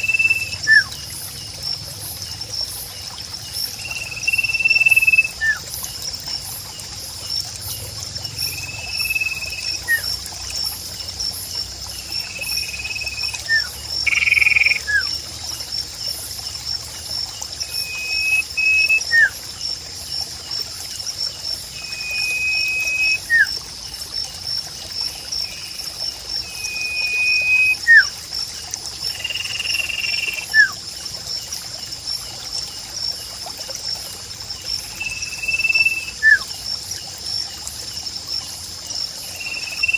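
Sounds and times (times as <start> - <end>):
whistling bird call: 0.0 - 0.9, 4.2 - 5.6, 8.5 - 10.1, 12.5 - 15.1, 17.6 - 19.4, 21.8 - 23.6, 26.4 - 28.1, 29.9 - 30.8, 35.0 - 36.5
pulsing insect trill: 0.0 - 39.9
trickling water: 0.0 - 39.9.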